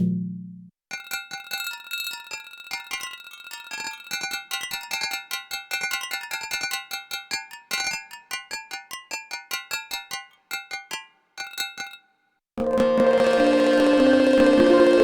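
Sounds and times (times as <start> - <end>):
bell-like synth drum rhythm: 0.0 - 0.6.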